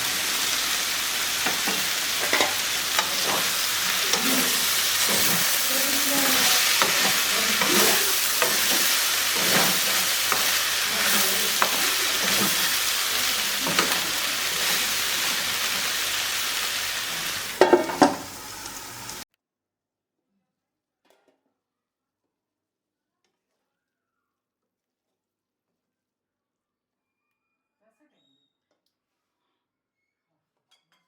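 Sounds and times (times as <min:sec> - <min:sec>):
spoon scraping a pan: 0:00.0 - 0:19.2
vegetables sizzling in hot oil: 0:00.0 - 0:19.2.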